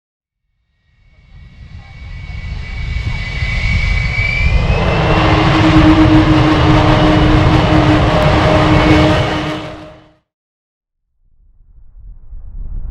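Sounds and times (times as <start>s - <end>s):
jet engine high whine: 0.8s - 10.2s
jet engine deep rumble: 1.0s - 9.9s.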